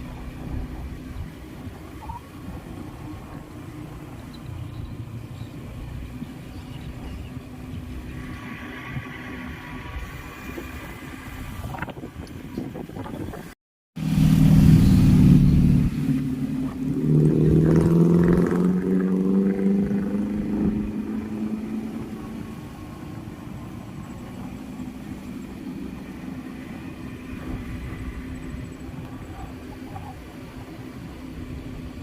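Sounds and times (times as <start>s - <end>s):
vehicle engine accelerating: 14.0s - 32.0s.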